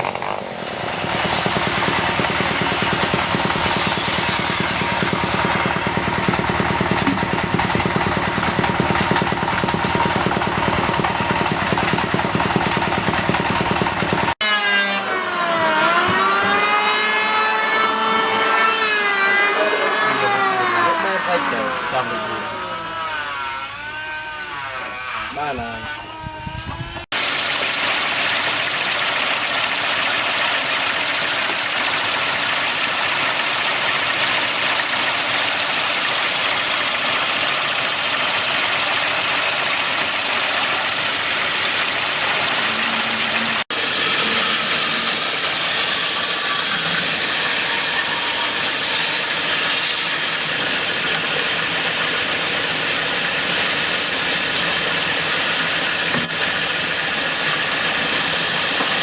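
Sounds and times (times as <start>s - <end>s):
woodworking power tool whirring: 0.0s - 59.0s.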